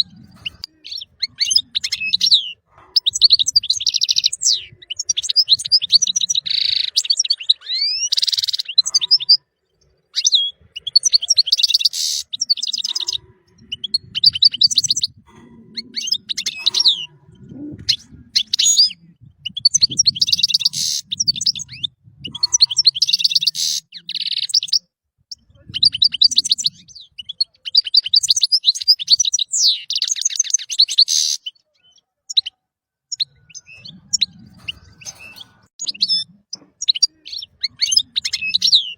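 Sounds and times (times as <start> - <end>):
goldfinch twittering and trilling: 0.0 - 9.4, 10.0 - 17.1, 17.8 - 24.8, 33.1 - 38.9.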